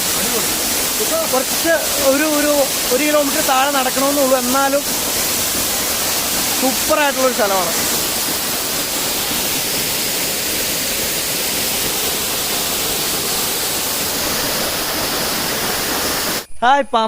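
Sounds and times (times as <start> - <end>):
waterfall pouring: 0.0 - 16.5.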